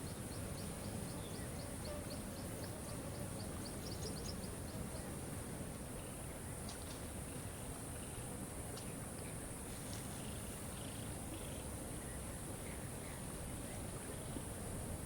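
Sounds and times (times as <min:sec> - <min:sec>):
faint bird chirps: 0:00.0 - 0:05.3.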